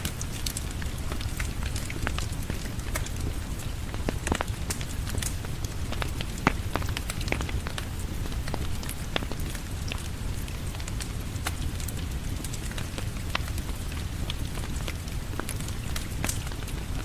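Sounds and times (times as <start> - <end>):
steady rain: 0.0 - 17.0
wood fire crackling: 0.0 - 17.0.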